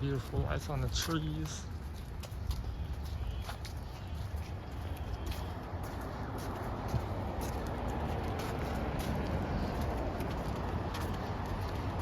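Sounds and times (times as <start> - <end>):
footsteps clicking: 0.0 - 12.0.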